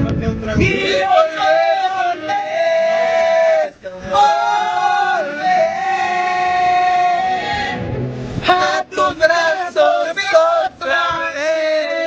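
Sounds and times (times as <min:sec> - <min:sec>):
man singing long notes: 0:00.6 - 0:12.0.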